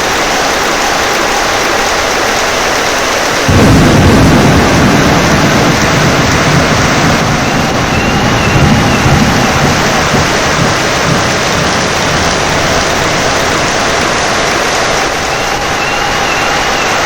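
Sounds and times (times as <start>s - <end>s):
heavy rain hissing: 0.0s - 17.0s
thunder rumbling: 3.4s - 17.0s.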